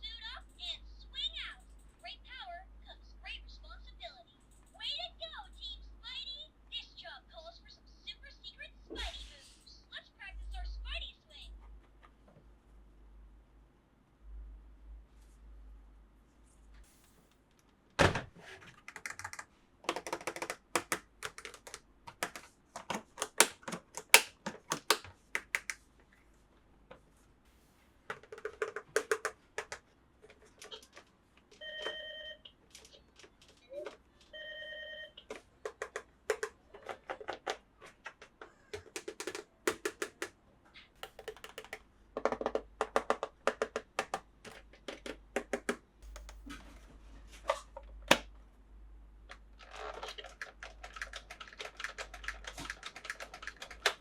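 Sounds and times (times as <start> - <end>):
plastic toy parts clicking: 18.8 - 25.8, 28.1 - 31.1, 35.3 - 40.4, 41.0 - 46.4, 49.3 - 54.0.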